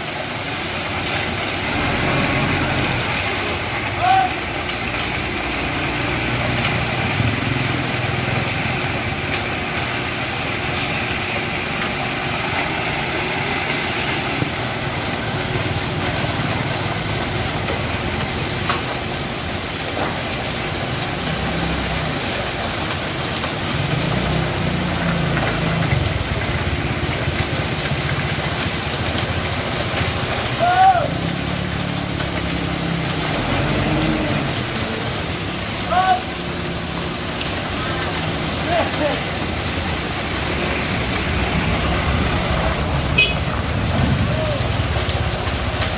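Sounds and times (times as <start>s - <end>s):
truck engine idling: 0.2s - 30.6s.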